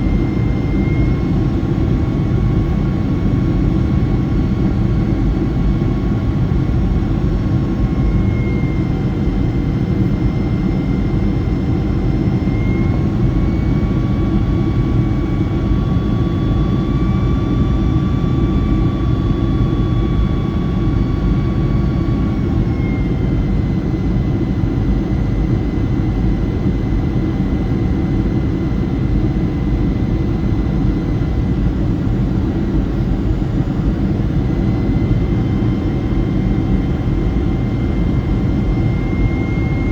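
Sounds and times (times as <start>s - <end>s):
jet engine rumble with high whine: 0.0s - 39.9s.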